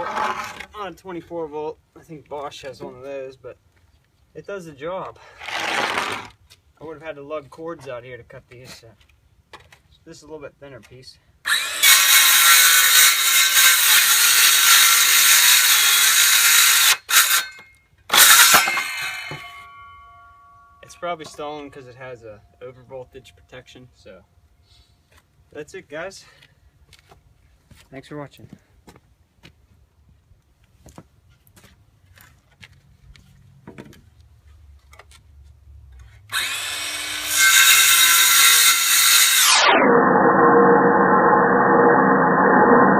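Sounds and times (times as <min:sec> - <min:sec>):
circular saw cutting board: 0:11.5 - 0:21.8, 0:36.3 - 0:42.9.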